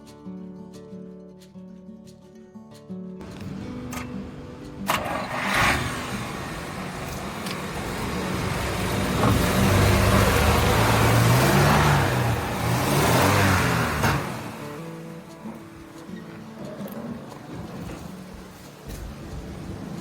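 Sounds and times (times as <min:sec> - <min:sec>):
car engine starting and running: 0:03.2 - 0:20.0
clunk: 0:04.8 - 0:05.9, 0:08.6 - 0:10.5.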